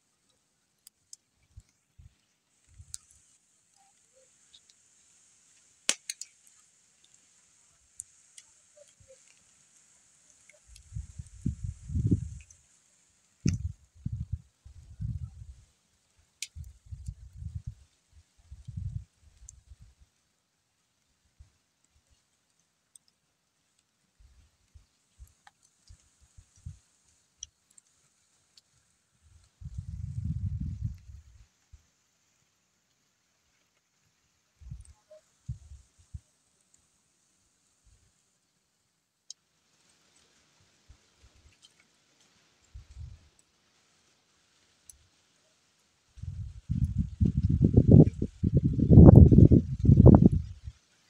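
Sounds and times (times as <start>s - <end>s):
faint steady hiss: 0.0s - 51.0s
faint clicks: 0.2s - 14.2s, 16.1s - 17.8s, 18.5s - 20.1s, 21.0s - 38.5s, 39.2s - 43.5s, 44.6s - 45.4s
sharp clicks and ticks: 13.4s - 13.7s.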